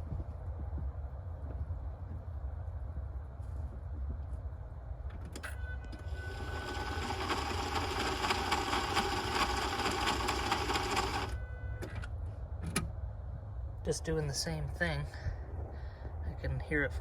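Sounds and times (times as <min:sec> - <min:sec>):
starter motor whirring: 0:05.3 - 0:12.0.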